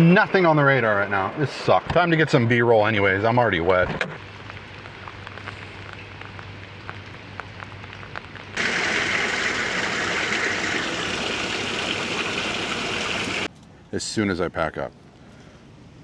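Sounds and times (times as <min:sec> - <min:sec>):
raindrops ticking: 0:04.2 - 0:13.5
heavy rain: 0:08.5 - 0:13.5.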